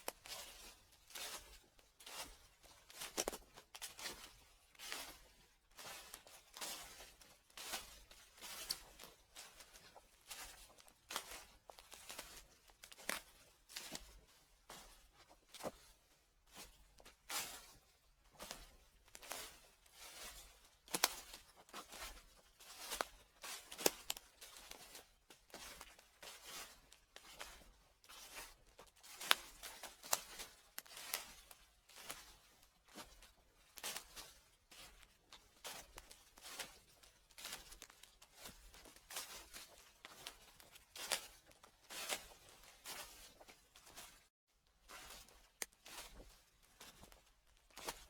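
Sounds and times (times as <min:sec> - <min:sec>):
footsteps through fallen leaves: 0:00.2 - 0:13.1, 0:19.1 - 0:25.6, 0:28.2 - 0:33.2.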